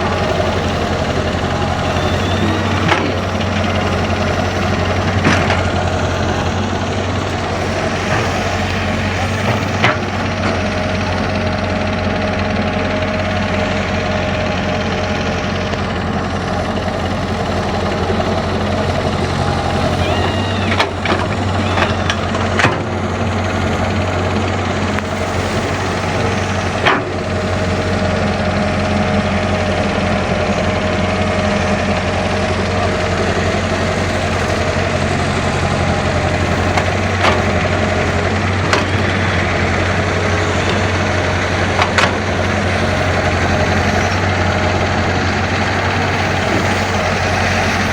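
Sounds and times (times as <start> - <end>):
excavator diesel engine: 0.0 - 47.9.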